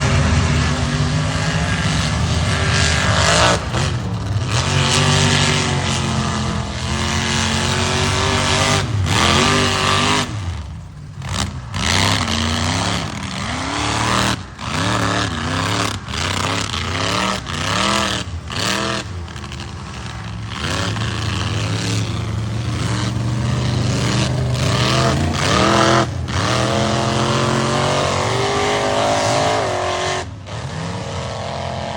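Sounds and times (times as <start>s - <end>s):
truck engine revving: 0.0s - 31.9s.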